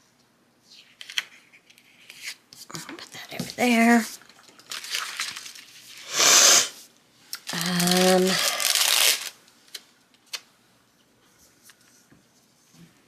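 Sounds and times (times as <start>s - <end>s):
paper tearing rustle: 4.6s - 6.6s, 7.4s - 9.4s.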